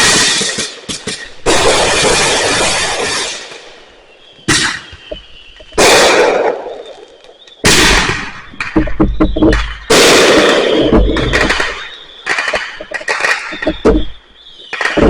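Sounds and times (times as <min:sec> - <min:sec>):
fireworks bangs: 0:00.0 - 0:15.0
crackling pops: 0:04.4 - 0:15.0.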